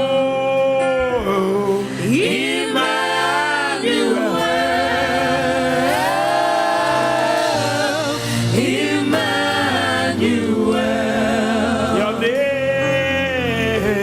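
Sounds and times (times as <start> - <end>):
gospel worship singing: 0.0 - 14.0
sustained accompaniment: 1.5 - 14.0.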